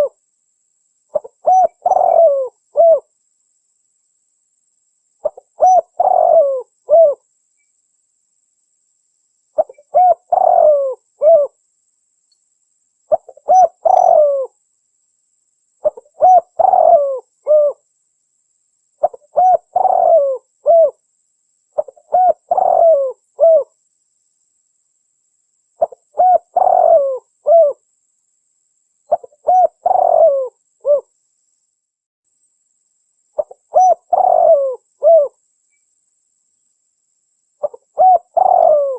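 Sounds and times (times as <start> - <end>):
dove cooing: 1.1 - 3.1, 5.2 - 7.2, 9.6 - 11.6, 13.1 - 14.6, 15.8 - 17.8, 19.0 - 21.0, 21.8 - 23.7, 25.8 - 27.8, 29.1 - 31.1, 33.4 - 35.4, 37.6 - 38.9.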